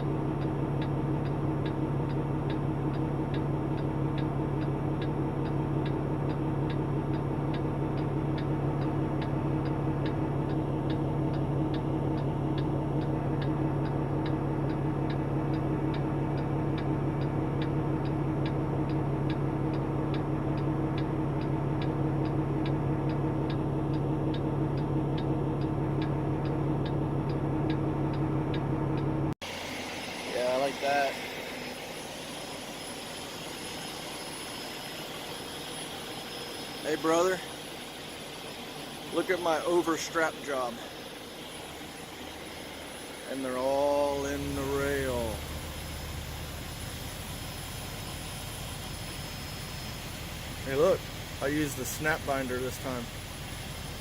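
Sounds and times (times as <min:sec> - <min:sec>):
even ticking: 0:00.0 - 0:29.1
truck diesel engine idling: 0:00.0 - 0:54.0.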